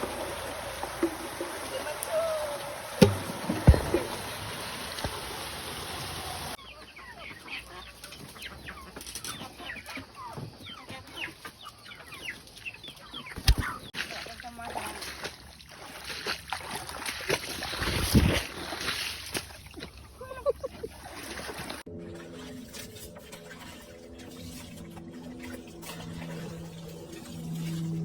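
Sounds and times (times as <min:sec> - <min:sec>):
chickens clucking: 0:01.2 - 0:13.9
sharp knock: 0:03.0 - 0:04.0.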